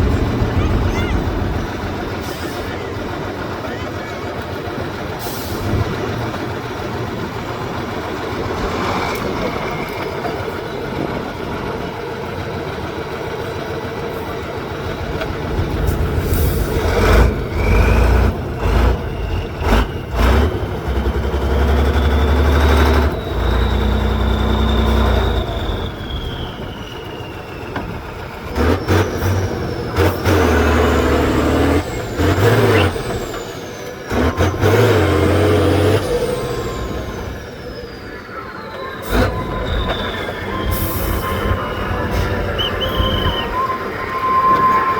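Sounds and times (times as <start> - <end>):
diesel truck engine revving: 0.0 - 44.9
high whine: 36.0 - 44.9.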